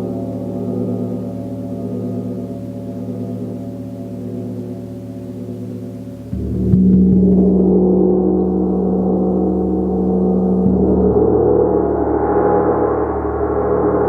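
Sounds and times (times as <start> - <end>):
large gong ringing: 0.0 - 14.0.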